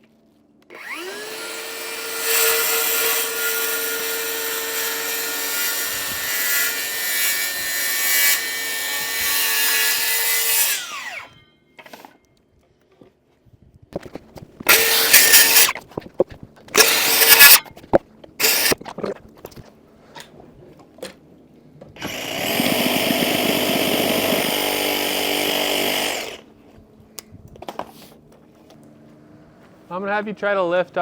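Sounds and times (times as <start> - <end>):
power tool cutting wood: 0.7 - 12.1, 14.7 - 15.8, 16.7 - 17.6, 18.4 - 18.8, 22.0 - 26.5.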